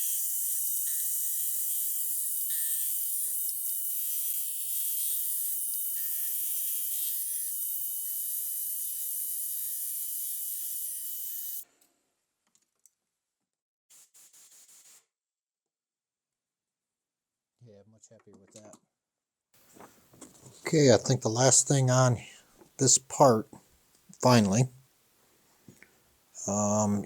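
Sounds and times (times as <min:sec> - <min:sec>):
milling machine cutting metal: 0:00.0 - 0:11.6.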